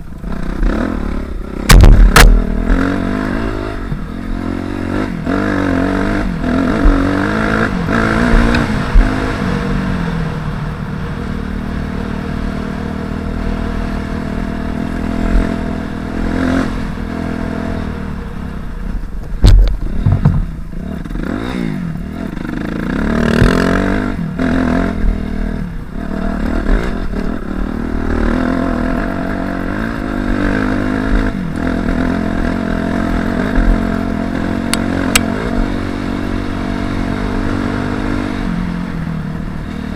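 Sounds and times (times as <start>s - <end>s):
dirt bike engine revving: 0.0s - 18.4s, 19.4s - 39.9s
loud sharp thump: 1.6s - 2.8s, 19.3s - 20.6s.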